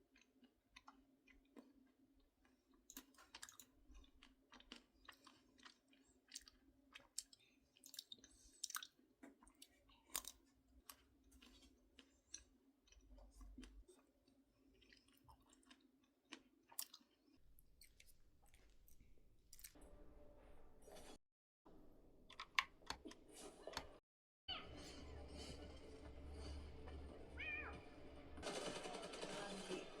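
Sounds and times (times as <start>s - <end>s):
person chewing crunchy snack: 0.0s - 19.8s.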